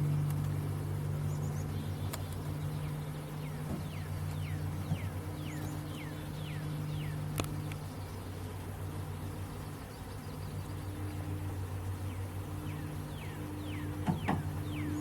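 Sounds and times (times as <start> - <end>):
bee swarm humming: 0.0 - 15.0
bird whistling: 12.1 - 15.0.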